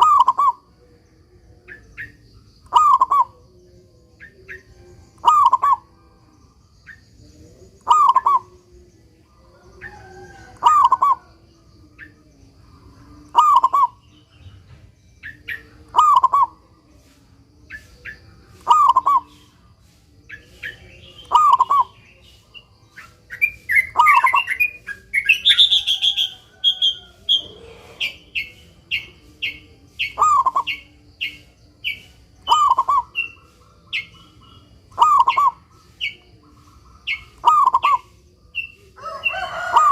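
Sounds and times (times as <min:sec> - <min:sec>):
dove cooing: 0:00.0 - 0:00.6, 0:02.7 - 0:03.4, 0:05.2 - 0:05.8, 0:09.5 - 0:11.3, 0:13.3 - 0:14.0, 0:15.6 - 0:16.6, 0:18.6 - 0:19.4, 0:21.2 - 0:22.0, 0:32.4 - 0:35.6
small birds chirping: 0:00.0 - 0:39.9.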